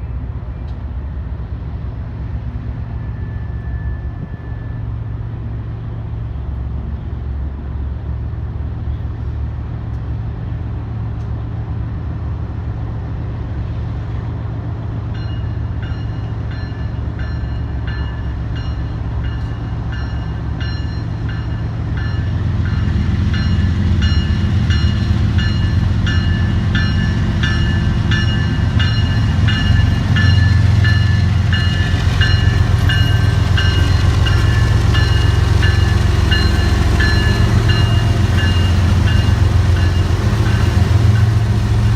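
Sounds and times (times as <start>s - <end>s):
diesel train rumbling: 0.0s - 41.9s
bell ringing steadily: 23.4s - 41.4s.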